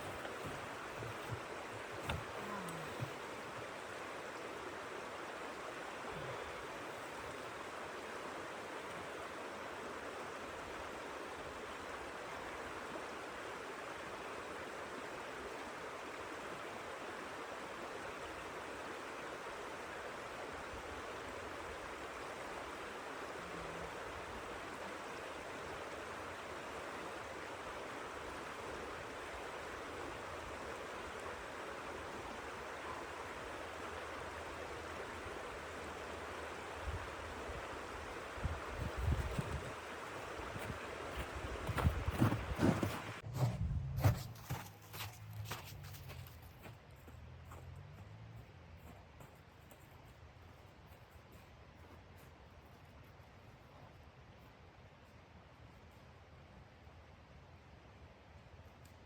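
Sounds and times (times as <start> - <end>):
blizzard wind hiss: 3.0 - 43.3.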